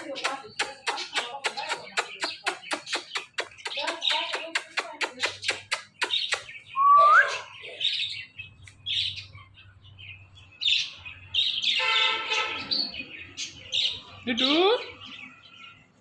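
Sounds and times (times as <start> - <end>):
parakeet chirps and whistles: 5.2 - 7.6.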